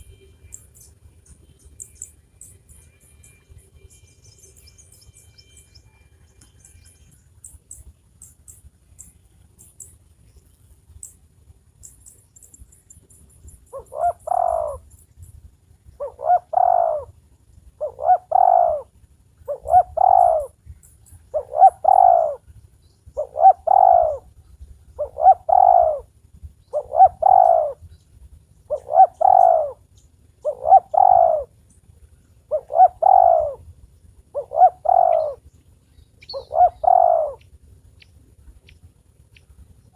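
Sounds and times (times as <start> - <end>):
dove cooing: 13.6 - 14.9, 15.9 - 20.6, 21.2 - 27.9, 28.6 - 31.6, 32.5 - 33.7, 34.3 - 35.5, 36.2 - 37.4.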